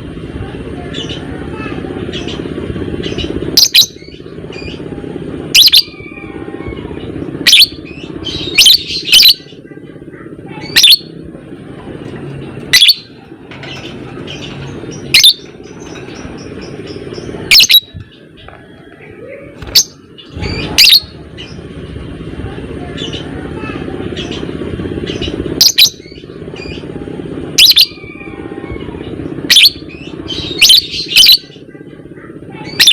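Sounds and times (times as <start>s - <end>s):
low background hum: 0.0s - 32.9s
bird shrill chirps: 7.4s - 9.5s, 12.7s - 18.0s, 29.5s - 31.5s.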